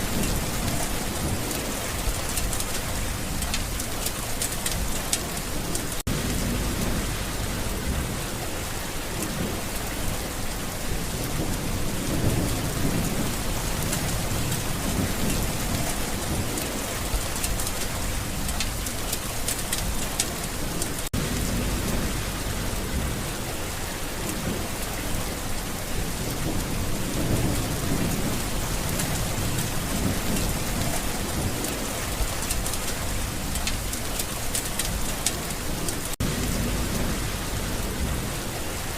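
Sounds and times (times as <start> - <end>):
heavy rain falling: 0.0 - 38.9
low rolling thunder: 0.0 - 38.9.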